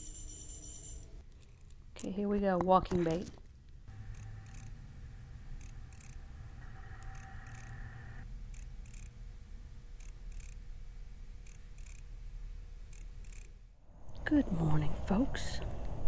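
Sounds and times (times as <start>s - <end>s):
high-pitched crackling clicks: 5.6s - 6.2s, 8.5s - 9.1s, 10.0s - 10.6s, 11.4s - 12.0s, 12.9s - 13.6s.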